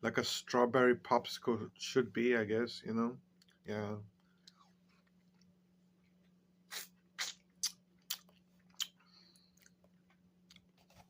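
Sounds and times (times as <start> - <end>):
faint steady hum: 0.0 - 11.0
mouth chewing and crunching: 6.7 - 10.8.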